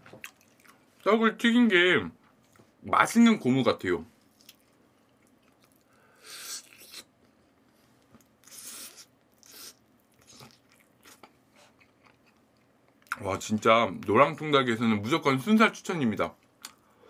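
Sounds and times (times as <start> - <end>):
person chewing crunchy food: 0.2 - 1.0, 4.3 - 7.1, 8.4 - 13.2.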